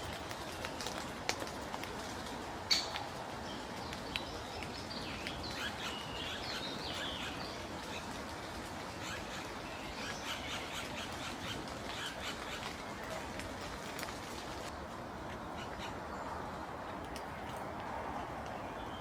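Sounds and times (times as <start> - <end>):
steady outdoor hiss: 0.0 - 19.0
small birds chirping: 2.7 - 13.2.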